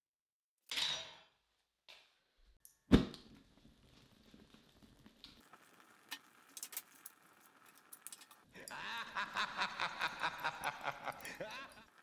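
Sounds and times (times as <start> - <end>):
fire crackling and popping: 2.9 - 12.0
high-pitched rhythmic laugh: 8.6 - 11.9.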